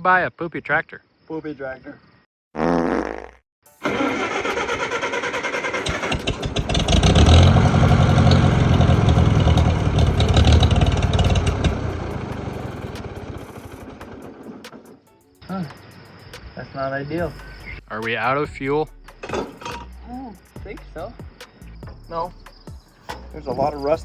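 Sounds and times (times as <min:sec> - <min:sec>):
tractor engine pulsing: 0:03.8 - 0:15.0.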